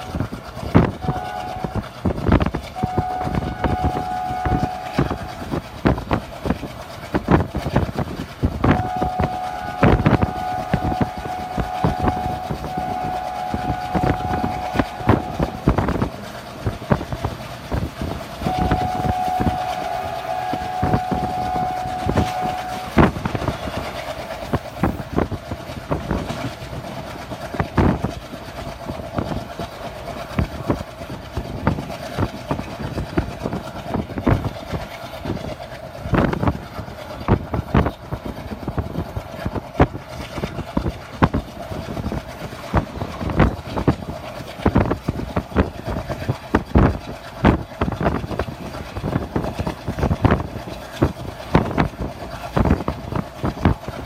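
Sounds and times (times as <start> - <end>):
train horn: 0.0 - 5.6, 8.6 - 16.2, 18.4 - 25.0
train running noise: 0.0 - 54.0
wheels clicking over rail joints: 0.0 - 54.0.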